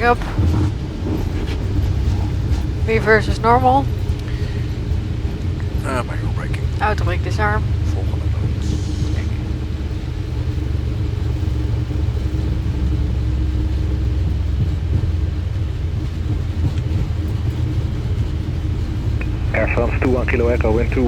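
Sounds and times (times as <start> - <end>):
airliner rolling low rumble: 0.0 - 21.0
faint steady hum: 0.0 - 21.0.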